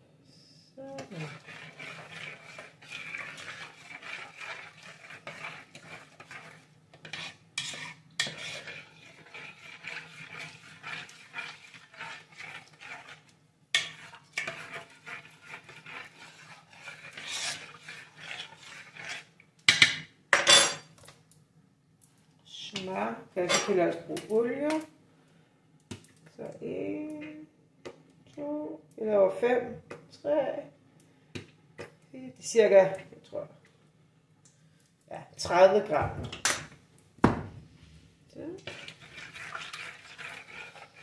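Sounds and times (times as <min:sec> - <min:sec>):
faint steady hum: 0:00.0 - 0:09.3
spoon stirring in a bowl: 0:01.0 - 0:21.0, 0:38.4 - 0:41.0.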